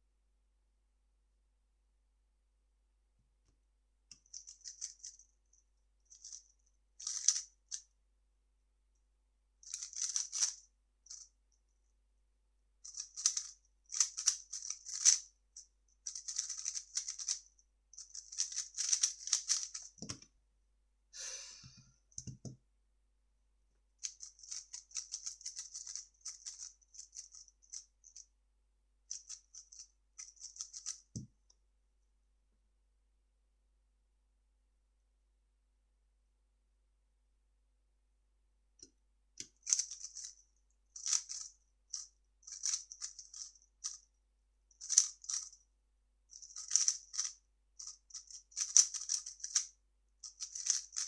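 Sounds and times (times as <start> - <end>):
plastic puzzle cube clicking: 9.7 - 10.6, 12.9 - 15.2, 16.1 - 17.4, 18.0 - 20.3, 24.0 - 27.4, 46.5 - 49.6, 50.2 - 51.0.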